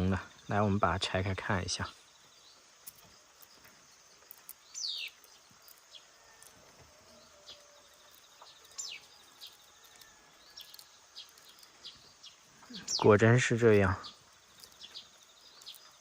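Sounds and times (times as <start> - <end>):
faint steady hiss: 0.0 - 16.0
high bird chirps: 1.8 - 16.0.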